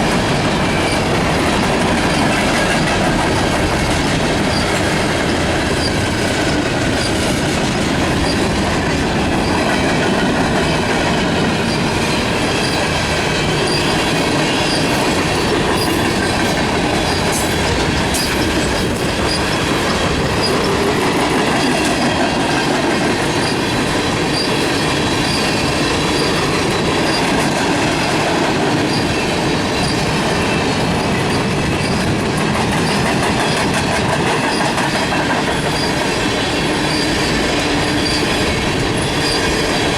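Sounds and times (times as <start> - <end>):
freight train wheels clattering: 0.0 - 39.9
faint high wheel squeal: 24.3 - 26.4, 35.6 - 36.1, 36.8 - 39.9.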